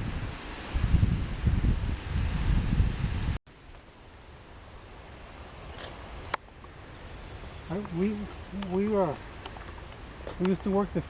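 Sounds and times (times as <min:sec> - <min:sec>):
wind buffeting microphone: 0:00.0 - 0:03.4
faint outdoor hiss: 0:00.0 - 0:11.0.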